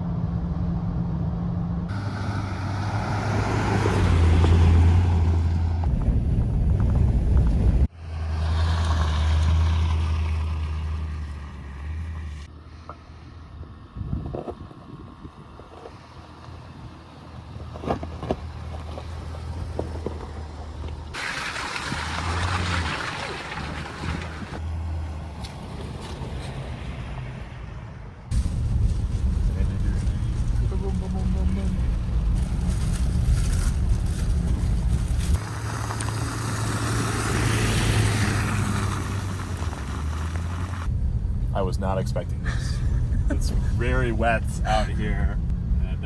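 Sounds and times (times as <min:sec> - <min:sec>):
truck engine and road drone: 0:00.0 - 0:46.0
tyres hissing through water: 0:21.2 - 0:24.0.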